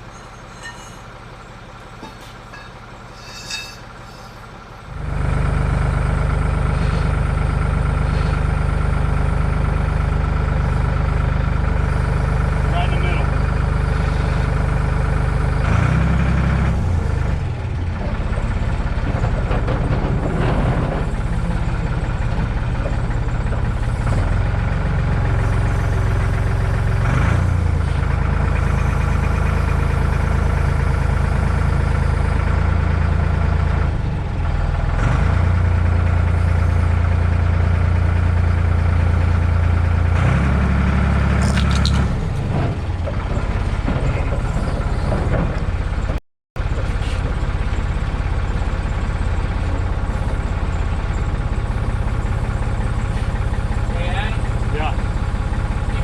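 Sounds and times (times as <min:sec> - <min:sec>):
short high squeak: 0:00.0 - 0:01.1, 0:02.5 - 0:04.5
forklift engine revving: 0:03.8 - 0:56.0.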